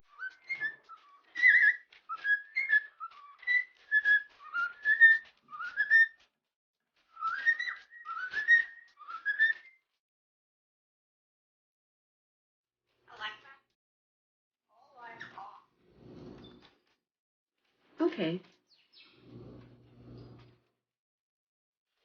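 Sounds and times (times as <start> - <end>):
parrot whistling: 0.1 - 6.3, 7.1 - 9.8.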